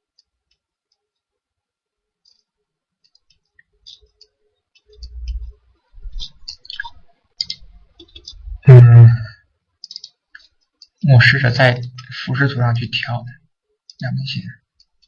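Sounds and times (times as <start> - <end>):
computer mouse clicking: 2.2 - 8.4, 9.8 - 11.0.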